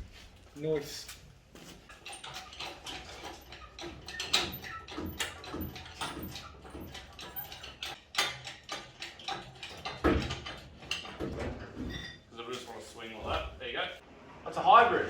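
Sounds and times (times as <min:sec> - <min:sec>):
clicks knocks and clattering: 0:01.9 - 0:12.0.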